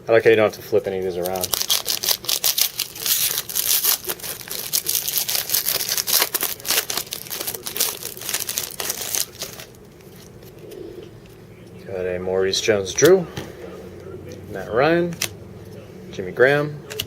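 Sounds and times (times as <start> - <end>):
card pack wrapper crinkling: 1.2 - 10.7.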